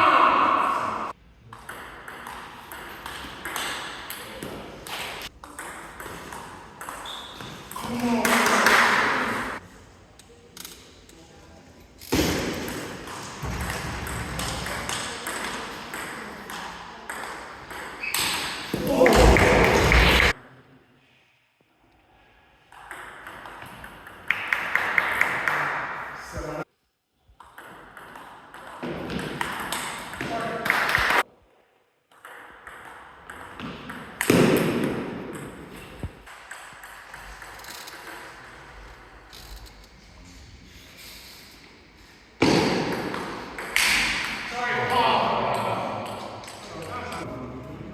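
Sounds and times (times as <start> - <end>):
people talking: 7.7 - 9.6, 18.8 - 20.5, 30.1 - 31.0, 44.5 - 47.9.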